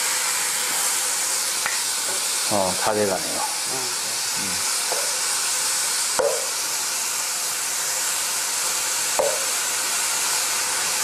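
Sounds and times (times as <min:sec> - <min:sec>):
meat sizzling in a frying pan: 0:00.0 - 0:11.0
spatula knocking on pan: 0:06.2 - 0:06.5, 0:09.2 - 0:09.5.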